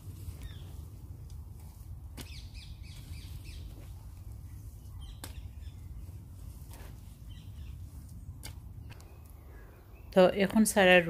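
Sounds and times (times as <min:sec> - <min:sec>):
steady low rumble: 0:00.0 - 0:11.0
birds chirping and calling: 0:02.2 - 0:04.1, 0:04.7 - 0:10.2.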